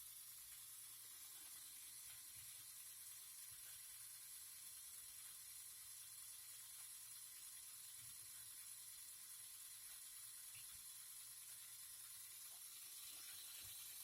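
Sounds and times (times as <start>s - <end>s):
faint high-pitched hiss: 0.0s - 14.0s.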